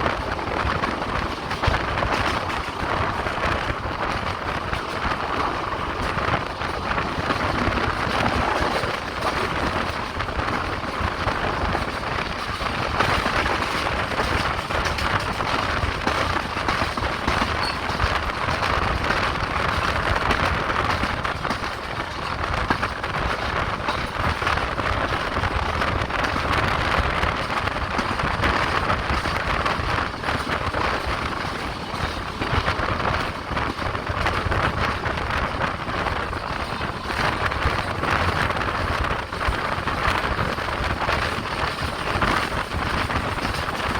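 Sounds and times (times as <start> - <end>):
train rumble and rattle on board: 0.0 - 43.9.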